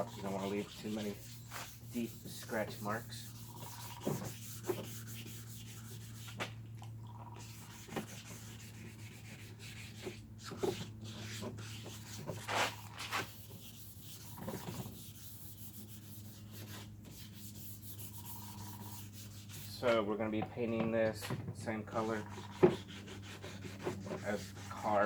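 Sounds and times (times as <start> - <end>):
sandpaper rubbing plastic: 0.0 - 6.5, 7.4 - 20.0, 21.9 - 25.0.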